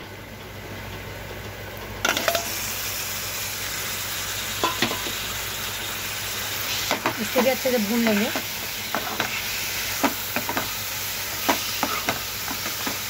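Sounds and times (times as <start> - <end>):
meat sizzling in oil: 2.0 - 13.0
steel spoon clattering on pan: 4.6 - 5.2.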